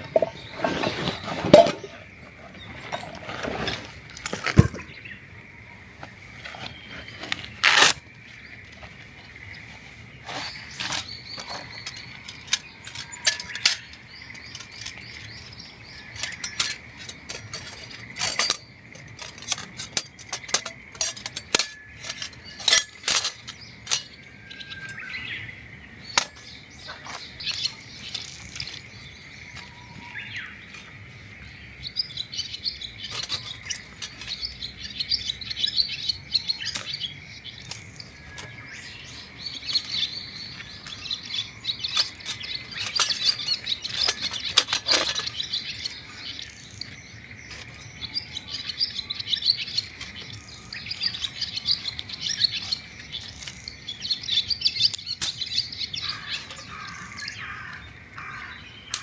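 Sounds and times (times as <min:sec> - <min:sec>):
small birds chirping: 0:00.0 - 0:59.0
sharp clicks and clinks: 0:10.8 - 0:24.2.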